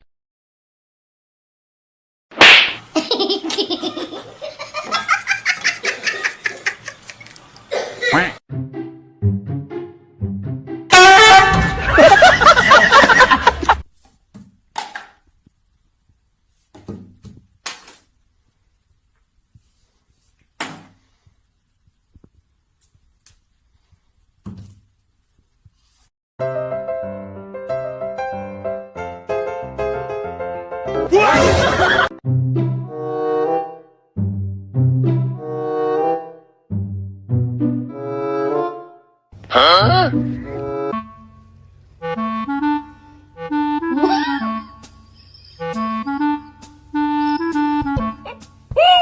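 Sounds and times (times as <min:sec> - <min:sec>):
person laughing: 0:11.9 - 0:13.8, 0:43.8 - 0:44.7
sudden thumps: 0:47.7 - 0:49.0.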